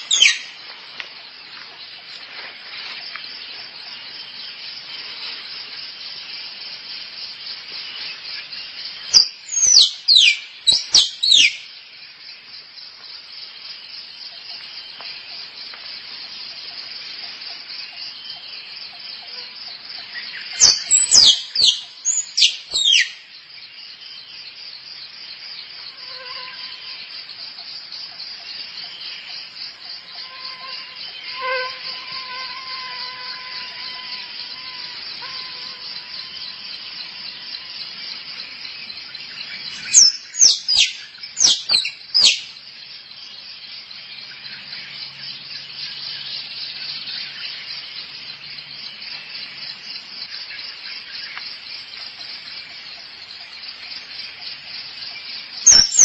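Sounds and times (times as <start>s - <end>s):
squirrel calls: 55.7s - 56.0s.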